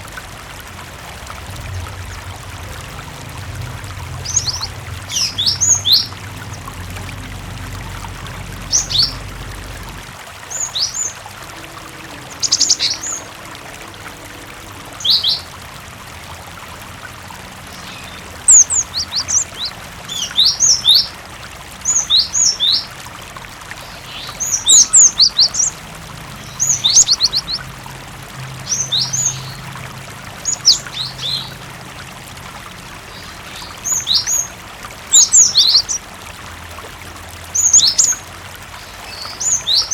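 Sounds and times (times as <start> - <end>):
running water trickling: 0.0 - 39.9
bird chirping: 8.7 - 9.3, 12.1 - 13.3, 17.8 - 21.0.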